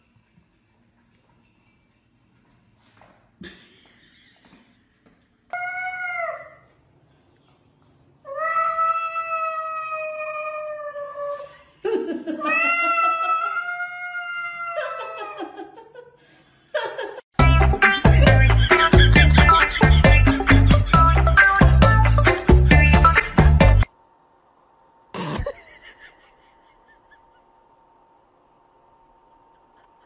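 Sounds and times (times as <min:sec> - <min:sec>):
cat yowling: 0:12.4 - 0:15.4.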